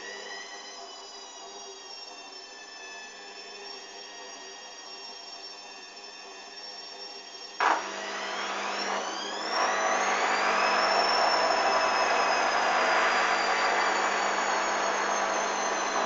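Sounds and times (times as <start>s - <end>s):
washing machine spin whine: 0.0s - 16.0s
washing machine humming: 7.6s - 16.0s.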